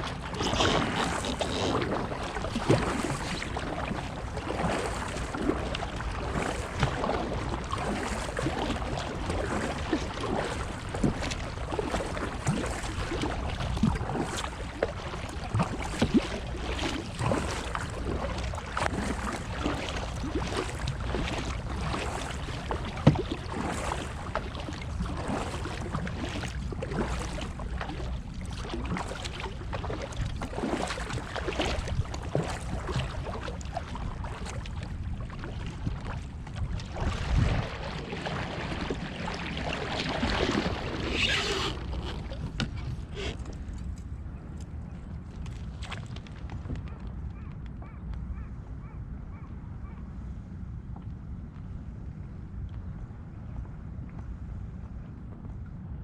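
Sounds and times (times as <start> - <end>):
water sloshing against kayak: 0.0 - 56.0
wind noise: 35.7 - 38.1.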